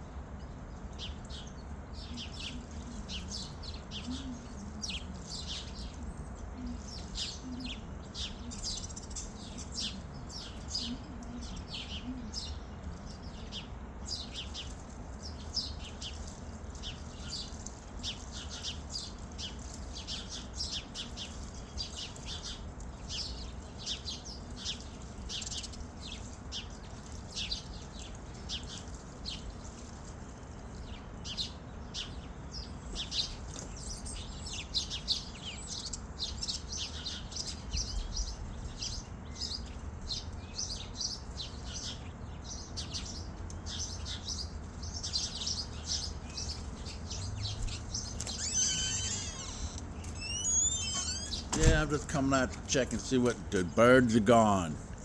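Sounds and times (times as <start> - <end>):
small birds chirping: 0.0 - 55.0
low wavering bird calls: 43.7 - 54.8.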